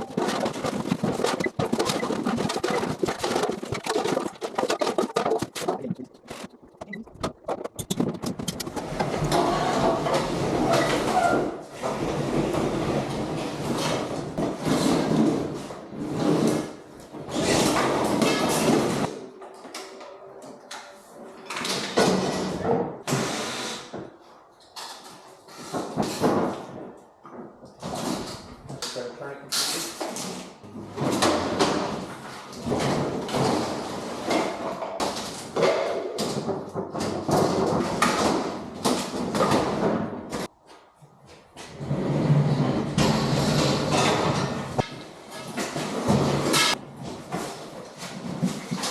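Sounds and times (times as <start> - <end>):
scraping and sliding noises: 0.0 - 19.2, 29.6 - 48.9.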